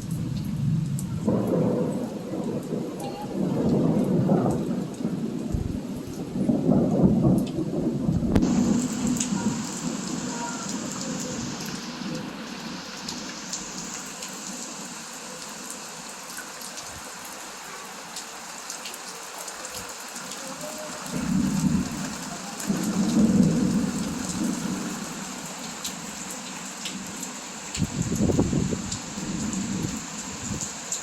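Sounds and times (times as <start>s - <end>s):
thunder rumbling: 0.0s - 14.6s, 21.1s - 25.8s, 26.9s - 30.8s
heavy rain pattering: 0.0s - 31.0s.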